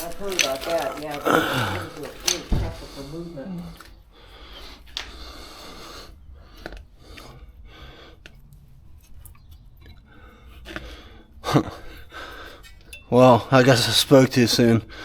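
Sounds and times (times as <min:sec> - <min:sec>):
metal tools scraping: 0:00.0 - 0:03.1, 0:12.3 - 0:14.0.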